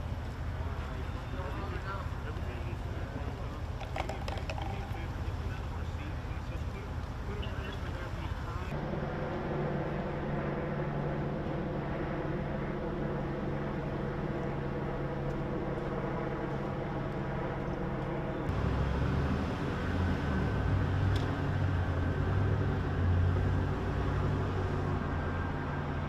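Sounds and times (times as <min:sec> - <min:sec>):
vehicle engine humming: 0:00.0 - 0:08.8.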